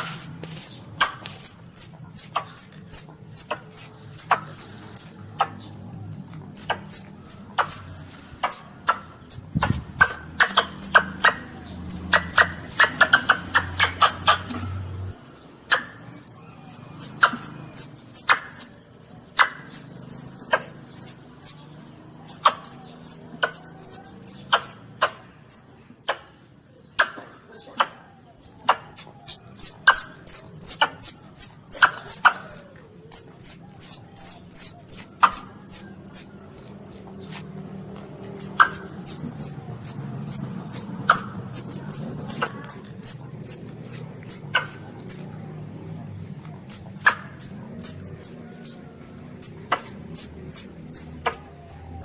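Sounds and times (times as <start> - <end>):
sharp clicks: 0.0 - 13.5
civet squeaking: 0.0 - 14.5, 15.7 - 25.7, 28.9 - 45.3, 46.5 - 52.0.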